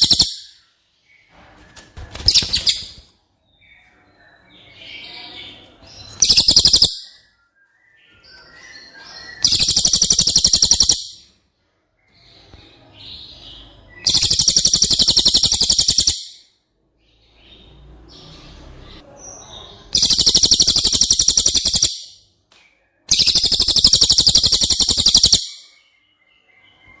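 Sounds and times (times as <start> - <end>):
bird chattering trill: 0.0 - 0.5, 6.2 - 7.1, 9.4 - 11.2, 14.1 - 16.4, 20.0 - 22.2, 23.1 - 25.7
soft bird chirps: 0.0 - 27.0.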